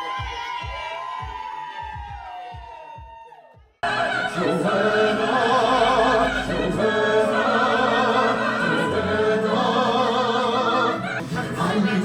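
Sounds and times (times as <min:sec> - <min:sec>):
choir singing with vibrato: 0:03.8 - 0:12.0.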